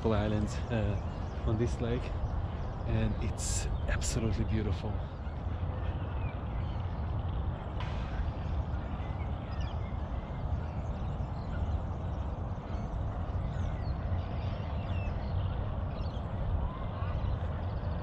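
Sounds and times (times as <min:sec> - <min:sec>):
faint bird calls: 0:00.0 - 0:18.0
steady low rumble: 0:00.0 - 0:18.0.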